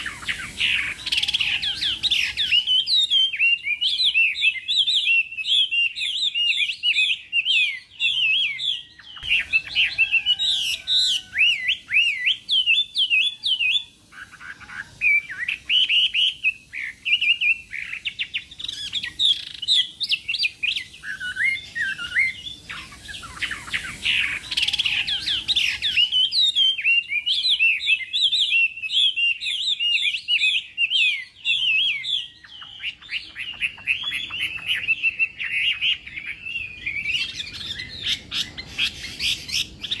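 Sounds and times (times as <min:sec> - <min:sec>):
bird singing whistled phrases: 0:00.0 - 0:40.0.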